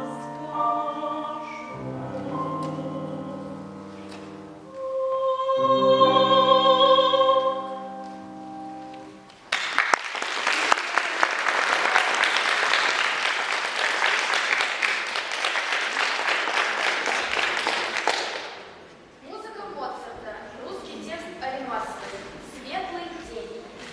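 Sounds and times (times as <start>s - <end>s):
musical accompaniment: 0.0s - 9.5s
audience applause: 9.5s - 18.7s.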